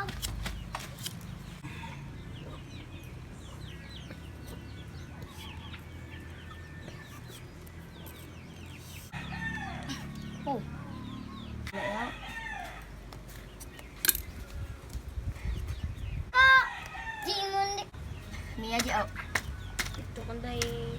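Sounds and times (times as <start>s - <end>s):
chickens peeping: 1.2s - 9.2s.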